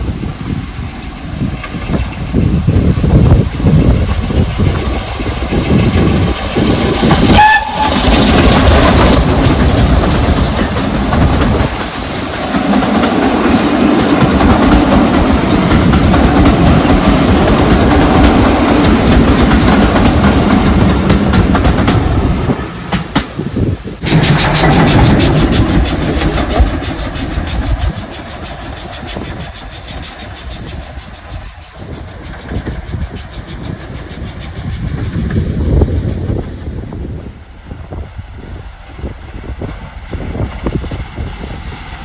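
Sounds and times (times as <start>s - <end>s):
steam train exhaust beats: 0.0s - 42.0s
train whistle: 7.2s - 8.5s
carriages rumbling and clattering: 14.1s - 37.2s.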